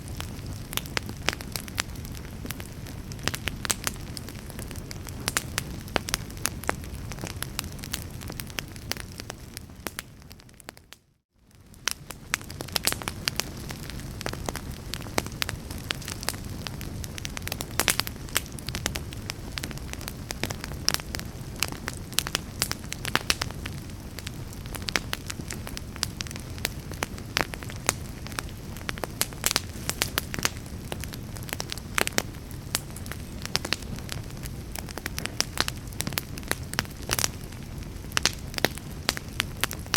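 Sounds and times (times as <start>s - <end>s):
fireplace fire crackling: 0.0s - 39.9s.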